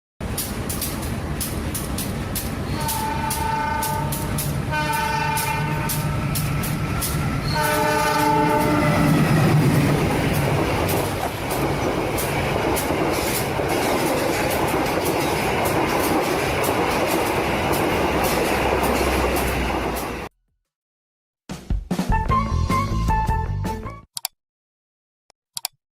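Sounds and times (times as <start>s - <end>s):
train clattering on rails: 0.2s - 20.3s
train horn blasts: 2.6s - 9.3s.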